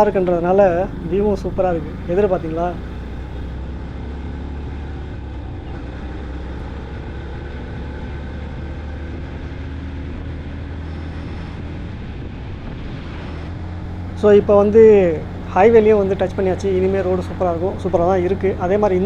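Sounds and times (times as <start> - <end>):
motorcycle engine running: 0.0 - 10.5, 13.8 - 19.0
wind over microphone: 10.5 - 19.0.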